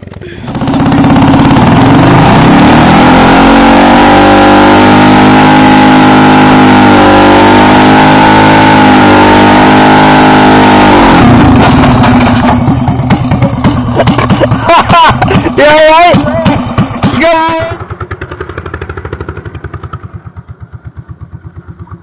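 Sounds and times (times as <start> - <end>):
motorcycle engine at high revs: 0.0 - 22.0.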